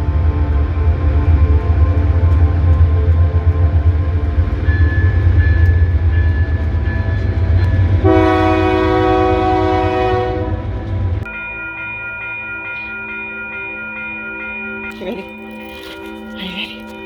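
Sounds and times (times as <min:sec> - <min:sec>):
train rumbling: 0:00.0 - 0:14.0
train horn blast: 0:07.6 - 0:11.2.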